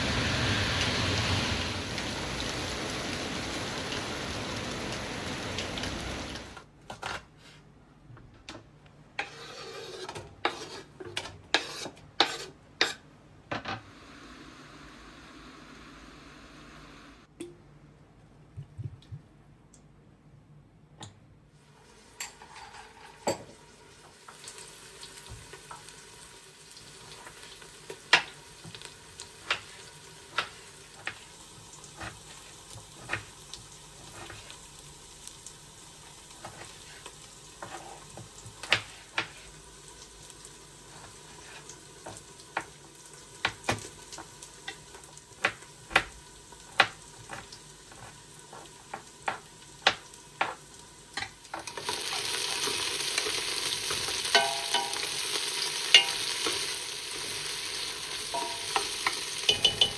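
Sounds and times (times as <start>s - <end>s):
food sizzling in a frying pan: 0.0s - 6.6s, 21.7s - 59.9s
utensil stirring against pan: 9.2s - 13.0s, 36.0s - 39.6s, 43.4s - 51.3s, 53.8s - 56.7s, 58.2s - 59.9s.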